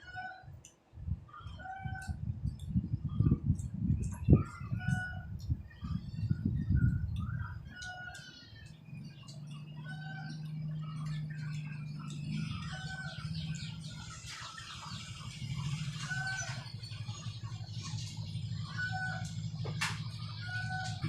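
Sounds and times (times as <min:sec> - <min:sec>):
chickens clucking: 0:01.3 - 0:21.0
steady low hum: 0:02.0 - 0:21.0.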